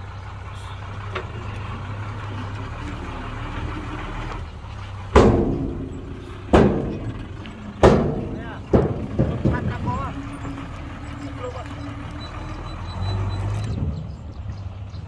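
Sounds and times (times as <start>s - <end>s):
diesel engine running: 0.0s - 15.0s
loud sudden bangs: 5.1s - 10.5s.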